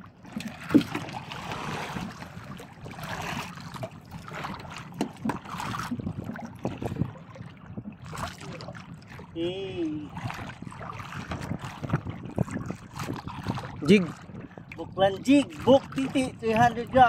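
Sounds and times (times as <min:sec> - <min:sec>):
water sloshing against boat hull: 0:00.0 - 0:17.0
wind on microphone: 0:00.2 - 0:17.0
sharp knocks on boat: 0:00.4 - 0:01.2, 0:04.5 - 0:06.9.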